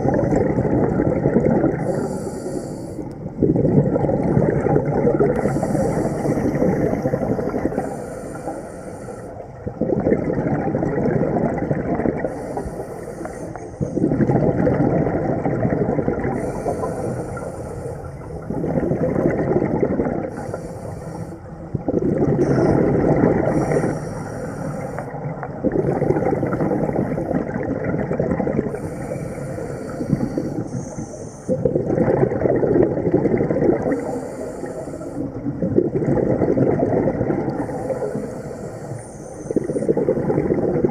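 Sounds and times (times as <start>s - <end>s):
exhaust bubbles rushing: 0.0s - 1.8s, 3.4s - 5.4s, 9.8s - 12.3s, 14.0s - 16.4s, 18.5s - 20.3s, 21.8s - 23.5s, 25.3s - 28.7s, 31.6s - 33.9s, 35.5s - 37.6s, 39.9s - 40.9s
regulator inhale hiss: 1.8s - 3.2s, 5.4s - 9.4s, 12.3s - 14.1s, 16.4s - 18.6s, 20.3s - 21.5s, 22.4s - 25.3s, 28.7s - 31.7s, 33.8s - 35.4s, 37.5s - 40.0s.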